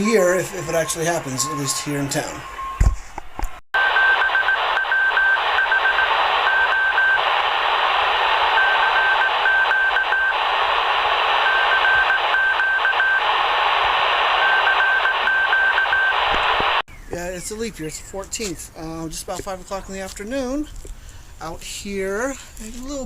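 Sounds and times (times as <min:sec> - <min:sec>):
radio static hiss: 0:00.0 - 0:02.6, 0:03.8 - 0:16.8
morse code beeps: 0:00.0 - 0:02.8, 0:03.8 - 0:07.2, 0:08.6 - 0:10.4, 0:11.4 - 0:13.3, 0:14.4 - 0:16.2.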